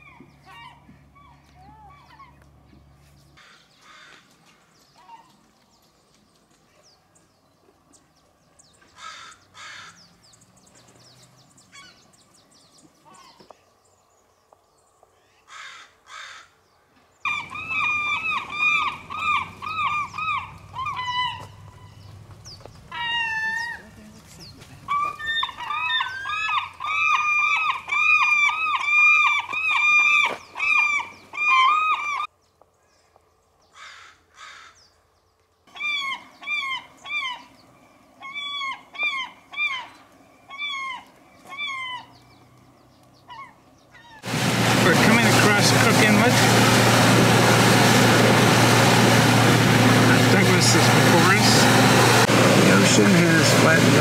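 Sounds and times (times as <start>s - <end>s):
bird calling rapid repeated notes: 17.3s - 22.0s, 24.9s - 32.3s.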